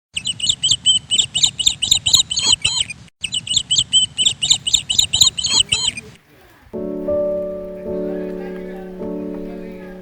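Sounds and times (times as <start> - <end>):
small bird chirping rapidly: 0.1 - 6.2.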